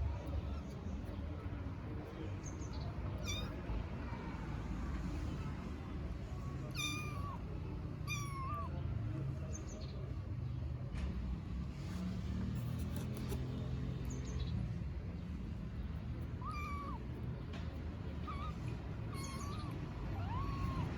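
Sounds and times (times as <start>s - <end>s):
kittens meowing: 3.2s - 3.7s, 6.6s - 8.8s, 16.2s - 20.9s.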